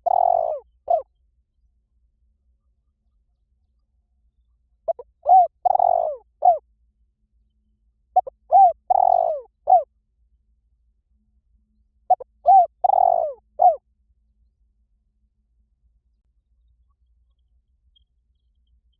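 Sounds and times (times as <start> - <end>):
dove cooing: 0.0 - 1.1, 4.9 - 6.6, 8.2 - 9.9, 12.1 - 13.8.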